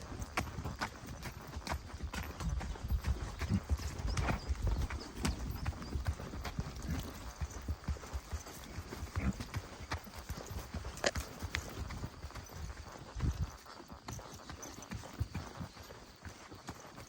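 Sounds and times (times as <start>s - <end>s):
footsteps on dirt path: 0.0s - 17.0s.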